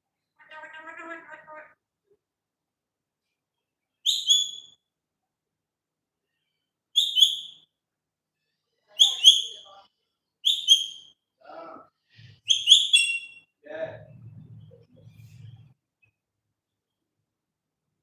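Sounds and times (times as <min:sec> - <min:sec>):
parrot low chatter: 0:00.4 - 0:01.8.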